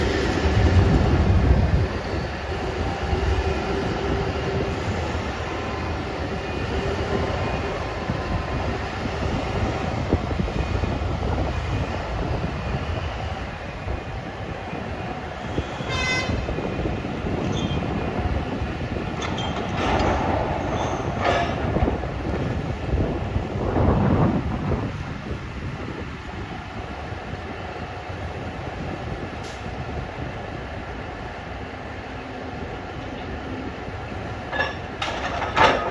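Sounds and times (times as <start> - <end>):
heavy mechanical rumble: 0.0 - 13.0.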